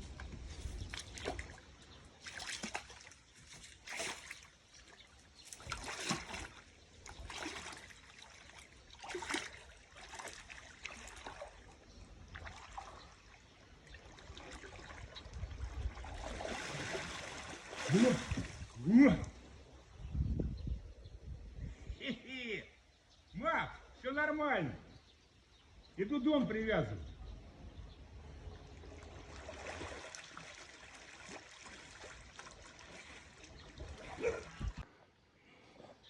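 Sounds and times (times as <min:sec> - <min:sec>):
water trickling and splashing: 0:00.0 - 0:20.0, 0:28.0 - 0:34.9.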